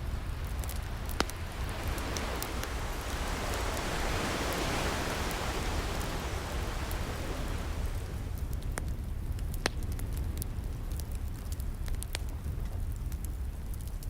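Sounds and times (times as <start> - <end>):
steady low rumble: 0.0 - 14.0
wood fire crackling and popping: 0.0 - 14.0
ocean wave washing in: 0.5 - 8.5.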